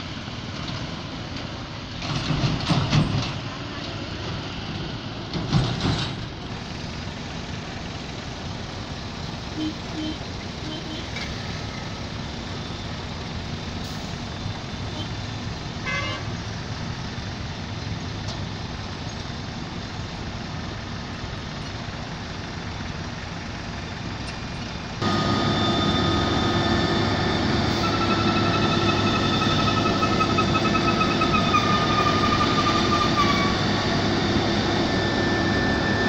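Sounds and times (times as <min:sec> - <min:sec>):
diesel machinery engines: 0:00.0 - 0:36.0
traffic: 0:00.0 - 0:36.0
vehicle horn toot: 0:09.6 - 0:11.2, 0:15.8 - 0:16.3.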